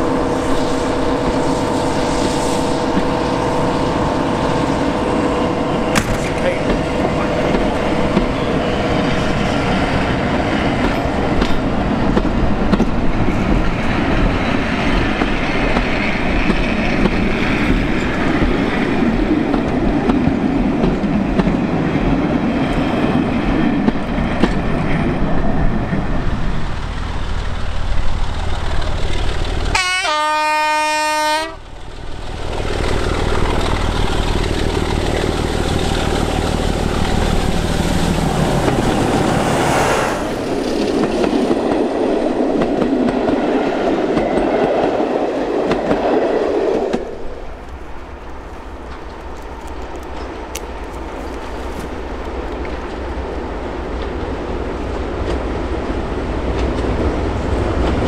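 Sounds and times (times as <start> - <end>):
diesel locomotive horn: 0.0 - 8.6, 29.7 - 31.6
diesel locomotive engine running: 0.0 - 58.0
train wheels on rails: 0.0 - 58.0.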